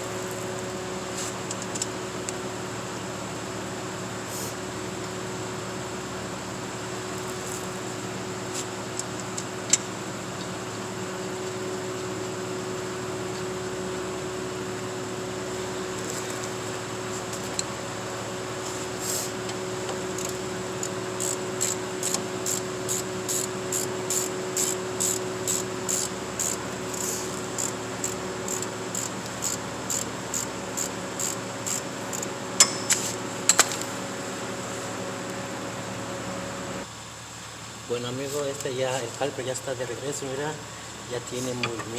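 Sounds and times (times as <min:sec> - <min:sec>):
steady hum: 0:11.1 - 0:37.0
ratchet wrench clicking: 0:20.2 - 0:33.8
sharp metal clicks: 0:31.7 - 0:33.8.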